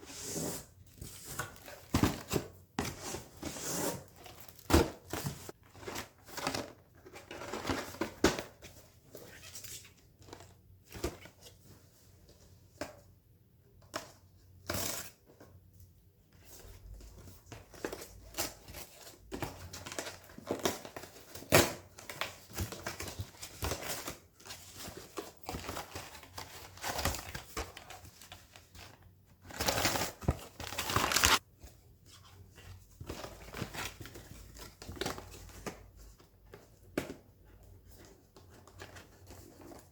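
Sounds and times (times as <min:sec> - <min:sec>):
packaging crinkling and rustling: 0:18.6 - 0:31.4.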